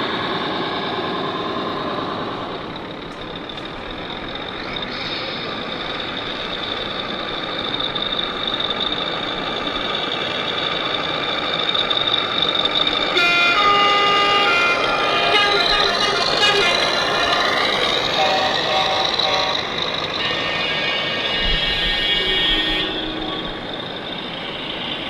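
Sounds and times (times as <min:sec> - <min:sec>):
model truck engine: 0:00.0 - 0:25.0
steady high-pitched tone: 0:13.0 - 0:25.0.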